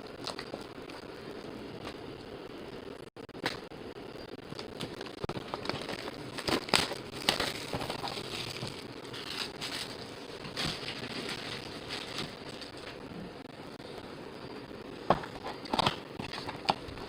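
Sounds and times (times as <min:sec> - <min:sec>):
packaging crinkling and tearing: 0:04.5 - 0:13.1.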